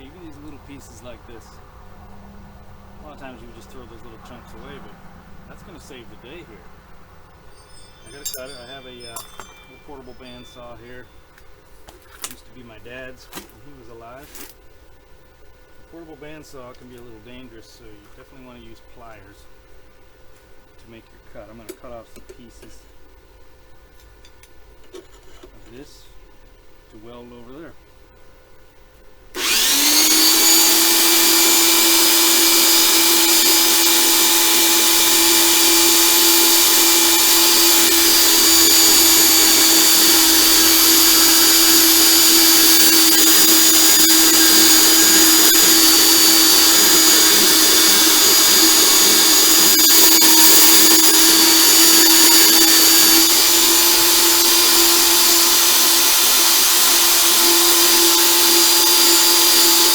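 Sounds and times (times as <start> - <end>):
bandsaw cutting steel: 0.0 - 0.5, 7.4 - 11.2, 29.4 - 59.9.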